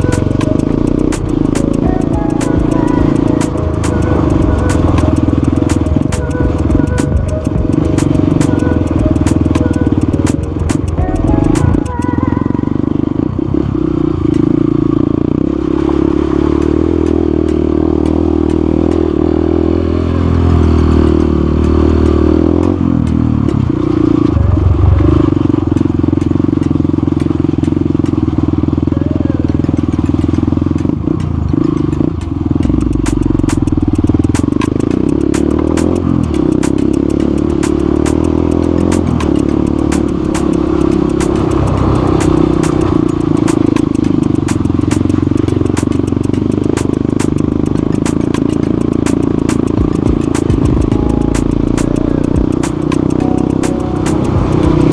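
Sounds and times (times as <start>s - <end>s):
motorcycle engine running: 0.0s - 54.9s
wind noise on microphone: 16.7s - 54.9s.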